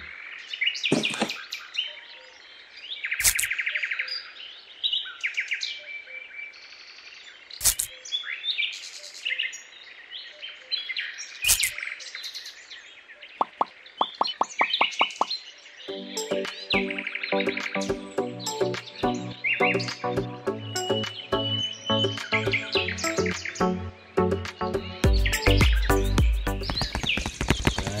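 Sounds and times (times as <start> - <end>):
birds chirping: 0.0 - 28.0
quick clicks: 3.2 - 3.5, 7.6 - 7.9, 11.5 - 11.8
sharp taps: 13.4 - 15.3, 26.6 - 28.0.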